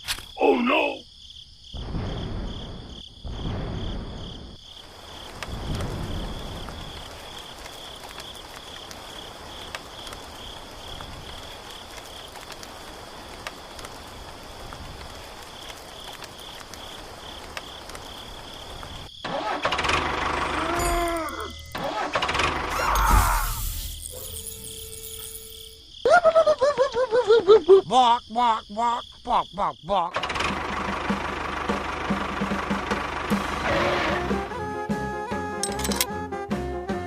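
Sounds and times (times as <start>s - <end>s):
background hiss: 0.0s - 19.2s
insects chirping: 0.0s - 36.3s.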